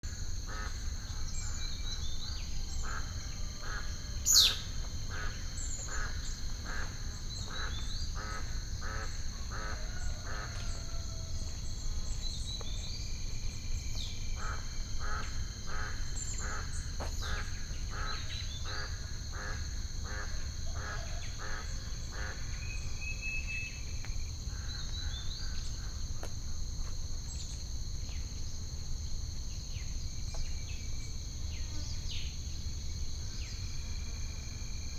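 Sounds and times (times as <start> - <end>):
insect drone: 0.0 - 34.9
birds chirping and calling: 4.3 - 4.6.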